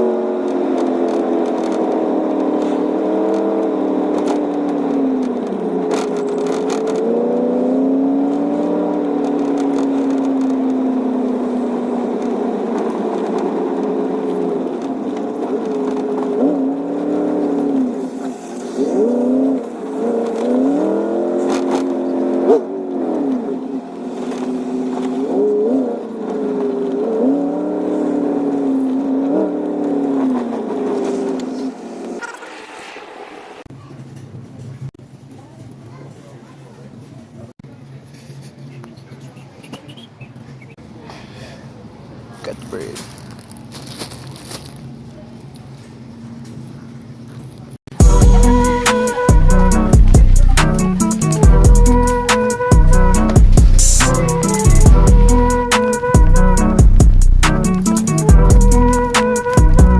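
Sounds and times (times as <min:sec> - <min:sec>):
loud engine revving: 0:00.0 - 0:33.7, 0:47.9 - 0:59.9.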